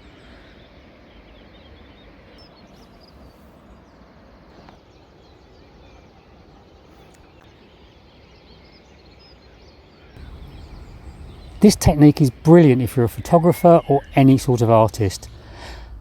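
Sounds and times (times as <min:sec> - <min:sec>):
faint bird chirps: 0:00.0 - 0:16.0
background hiss: 0:10.0 - 0:16.0.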